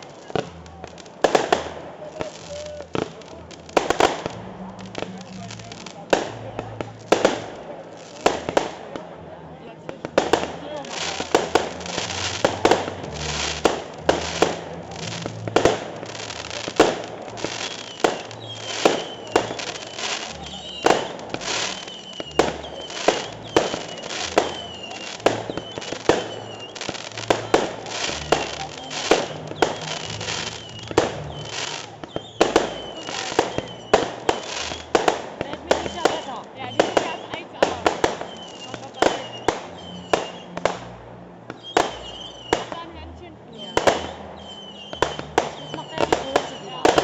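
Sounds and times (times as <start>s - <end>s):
high wavering firework whistle: 11.0s - 35.0s, 35.8s - 40.7s, 41.6s - 42.8s, 43.6s - 47.0s.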